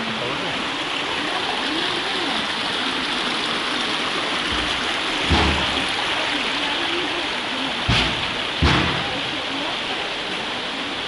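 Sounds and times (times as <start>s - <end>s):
stream rushing over rocks: 0.0s - 11.0s
low thump: 7.9s - 9.3s.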